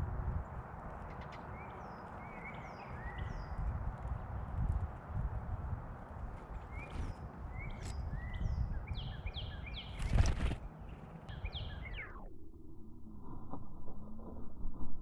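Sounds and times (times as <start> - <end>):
songbirds chirping: 0.4 - 12.2.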